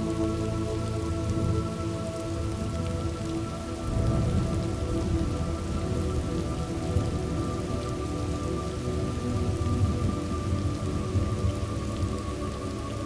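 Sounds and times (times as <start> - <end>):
soft sustained musical tones: 0.0 - 13.0
steady rain: 0.0 - 13.0
thunder rumble: 2.4 - 8.4.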